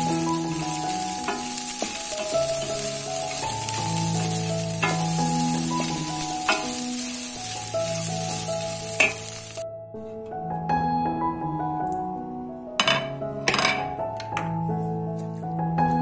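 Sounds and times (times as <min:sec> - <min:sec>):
food sizzling in a pan: 0:00.0 - 0:09.6.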